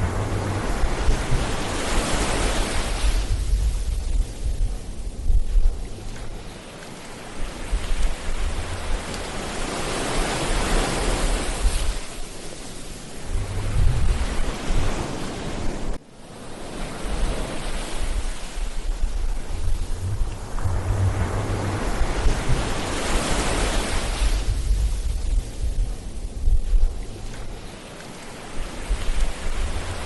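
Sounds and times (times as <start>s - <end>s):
ocean surf washing on beach: 0.0s - 30.0s
wind gusting on microphone: 0.0s - 30.0s.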